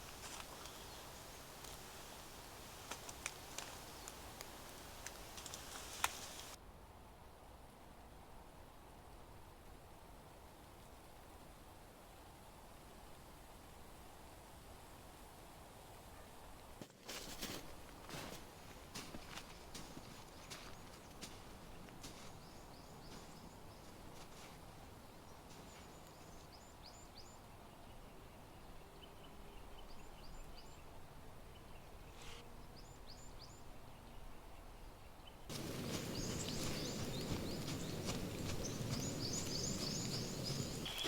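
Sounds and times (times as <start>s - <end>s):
small birds chirping: 0.0s - 6.6s, 19.0s - 28.2s, 35.5s - 41.0s
steady rustling noise: 35.5s - 41.0s.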